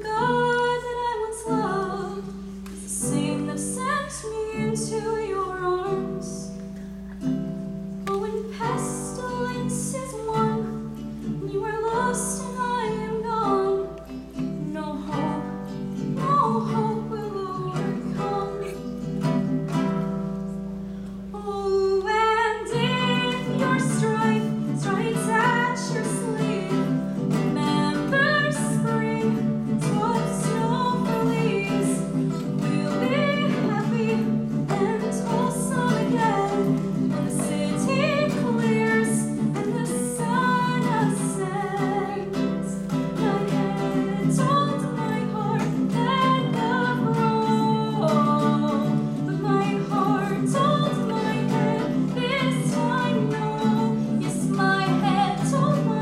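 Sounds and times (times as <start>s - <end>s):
woman singing: 0.0s - 7.3s, 8.0s - 20.4s, 21.3s - 56.0s
guitar accompaniment: 0.0s - 56.0s.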